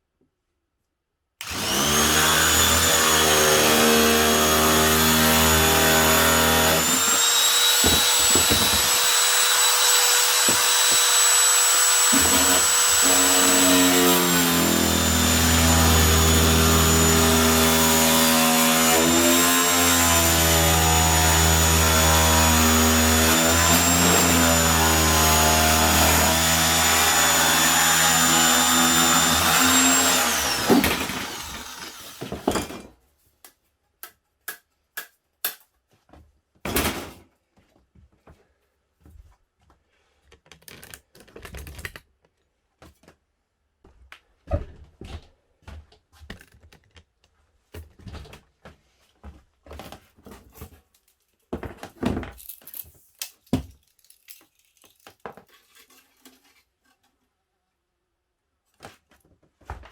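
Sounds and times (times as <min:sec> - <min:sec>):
power tool motor running: 0:01.4 - 0:32.3
clicks and knocks of parts handled: 0:50.3 - 0:57.1.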